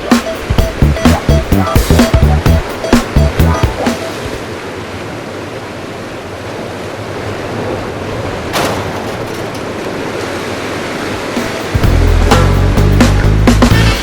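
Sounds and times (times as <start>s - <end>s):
background music: 0.0s - 4.3s, 11.3s - 14.0s
ocean surf rushing: 0.0s - 14.0s.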